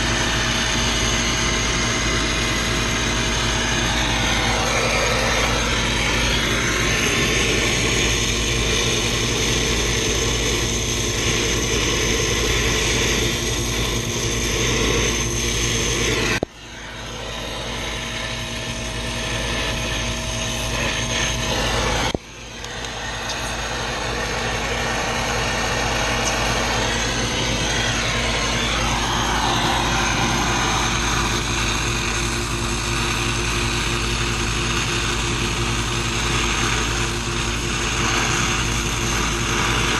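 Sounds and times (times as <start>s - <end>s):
machine humming loudly: 0.0s - 39.9s.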